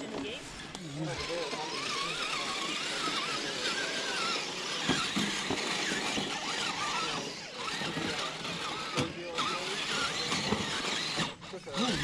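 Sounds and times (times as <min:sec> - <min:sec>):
rc car motor whining: 0:00.0 - 0:12.0
toy truck knocking against rock: 0:04.8 - 0:06.5.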